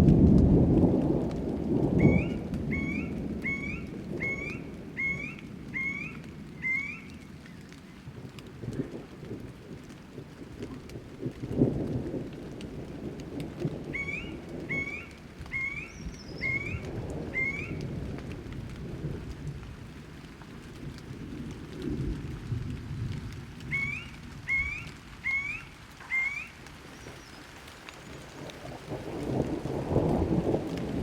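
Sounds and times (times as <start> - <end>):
low rolling thunder: 0.0 - 27.2, 28.0 - 31.0
steady rain: 0.0 - 31.0
bird calling rising notes: 2.0 - 7.6, 13.9 - 17.8, 23.7 - 27.5.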